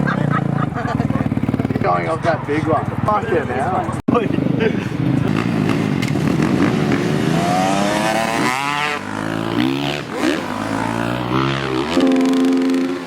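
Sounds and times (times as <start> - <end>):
dirt bike engine revving: 4.4 - 13.0.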